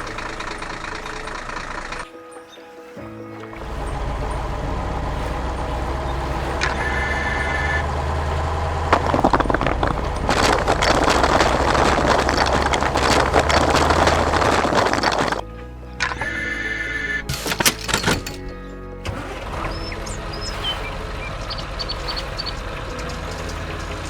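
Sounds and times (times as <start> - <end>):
loud crackling rumbling noise: 0.0 - 2.0, 3.6 - 15.5, 19.7 - 24.0
heavy vehicle engine running: 0.0 - 2.1, 3.5 - 15.4, 17.2 - 24.0.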